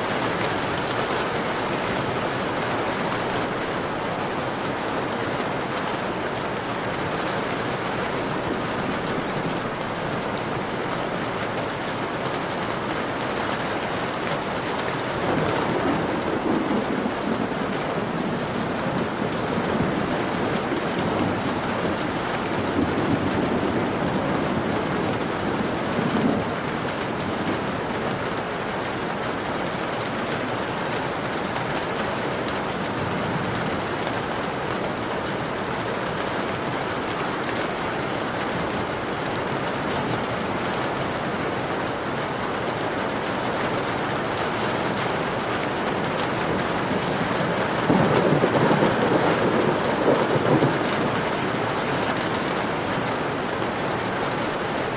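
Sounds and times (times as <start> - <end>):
rain pattering on a window: 0.0 - 54.9
distant thunder rumbling: 15.2 - 27.2, 45.7 - 52.1.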